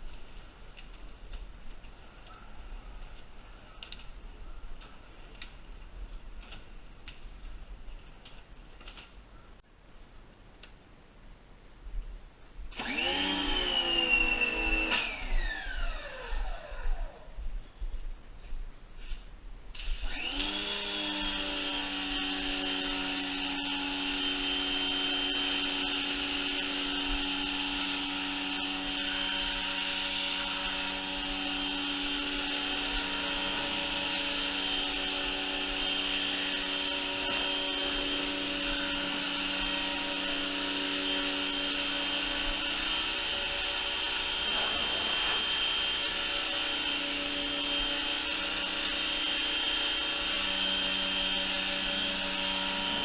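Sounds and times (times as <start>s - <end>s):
pressure washer motor whining: 12.8s - 17.1s, 19.9s - 53.0s.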